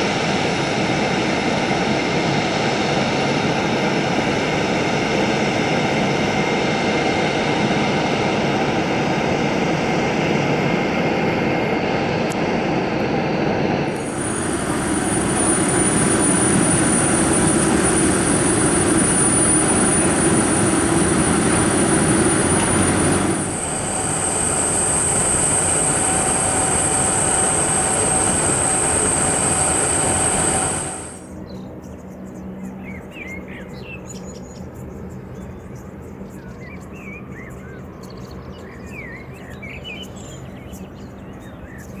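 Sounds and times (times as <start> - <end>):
jet engines whining: 0.0 - 31.4.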